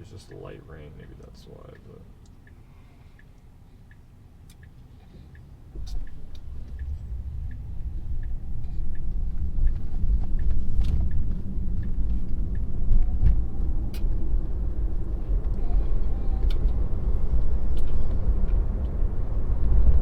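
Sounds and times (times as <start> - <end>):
road and tyre rumble: 0.0 - 20.0
light regular ticking: 0.2 - 15.7.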